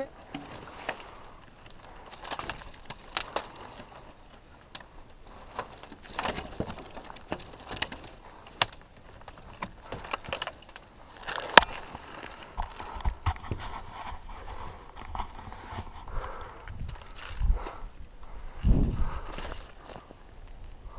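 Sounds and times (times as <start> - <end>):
gear rattling: 0.0 - 15.4.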